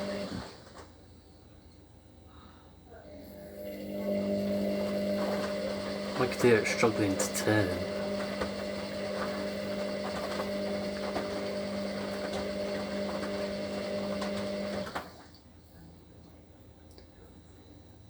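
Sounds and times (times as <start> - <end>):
washer dryer motor humming: 0.0 - 1.2, 2.9 - 15.4.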